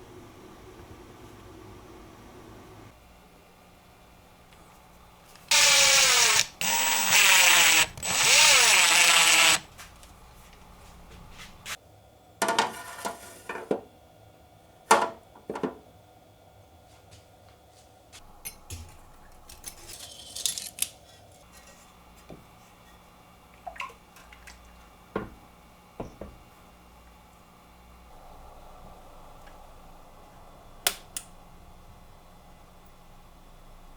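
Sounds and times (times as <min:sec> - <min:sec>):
small electric power tool running: 0:05.5 - 0:09.7.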